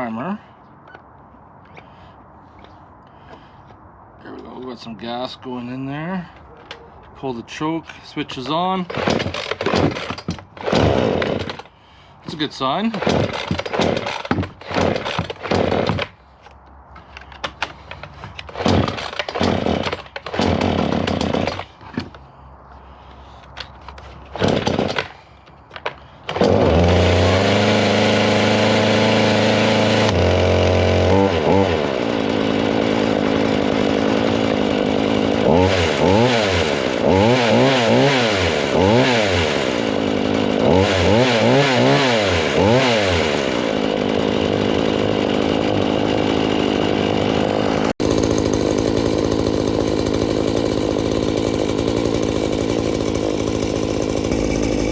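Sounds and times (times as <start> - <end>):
chainsaw engine starting and revving: 8.7 - 11.7, 12.3 - 16.2, 18.4 - 22.1, 23.6 - 54.9.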